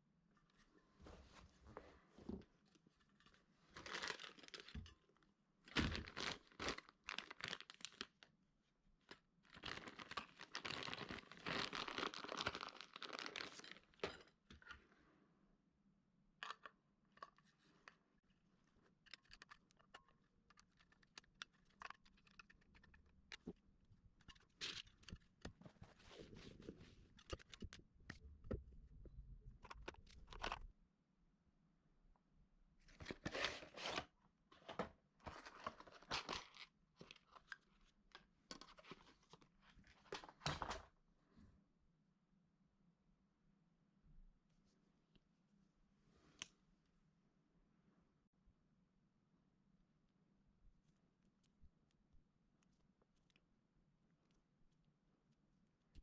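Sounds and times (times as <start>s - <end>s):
rustling and crinkling: 0.5s - 8.3s, 9.0s - 14.7s, 18.6s - 28.4s, 32.8s - 40.9s.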